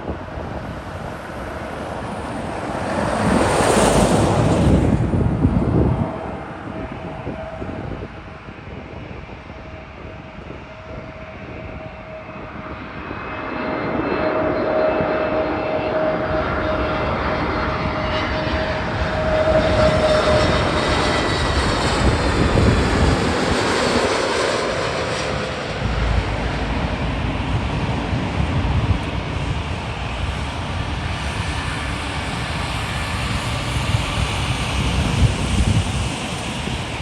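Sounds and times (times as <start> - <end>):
jet airliner passing: 0.0 - 37.0.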